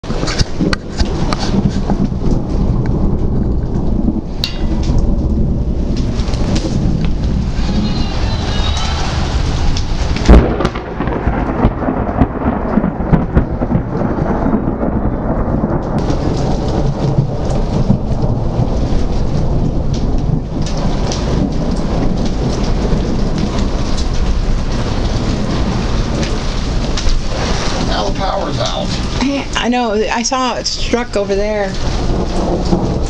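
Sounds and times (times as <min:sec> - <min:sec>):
rain falling: 0:00.0 - 0:33.0
thunder: 0:00.0 - 0:33.0.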